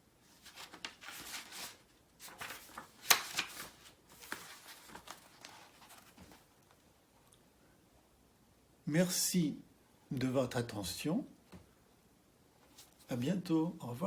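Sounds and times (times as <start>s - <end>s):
rustling and handling noise: 0.1s - 7.0s, 12.6s - 13.2s.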